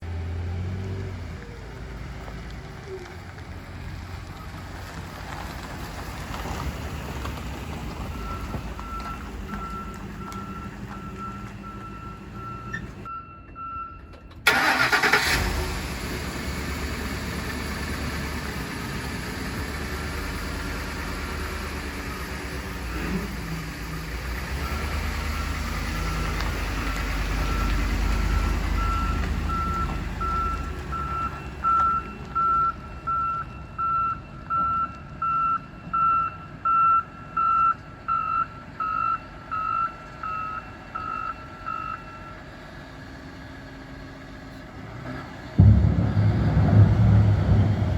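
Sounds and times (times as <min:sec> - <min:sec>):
engine cranking and running: 0:14.2 - 0:25.4.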